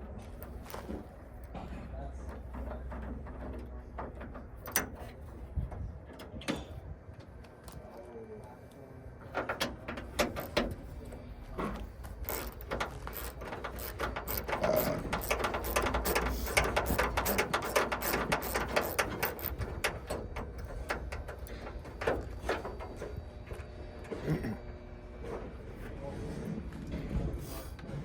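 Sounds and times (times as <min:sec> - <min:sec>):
metallic clicking and rattling of door lock: 0:02.9 - 0:05.2, 0:09.4 - 0:10.8, 0:12.1 - 0:23.2.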